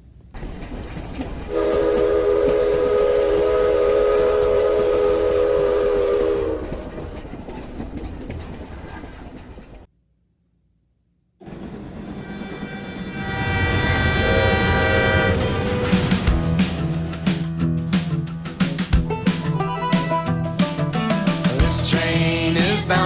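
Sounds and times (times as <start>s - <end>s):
train rumbling: 0.3s - 9.9s, 11.4s - 23.0s
train horn blast: 1.5s - 6.9s, 12.1s - 16.2s.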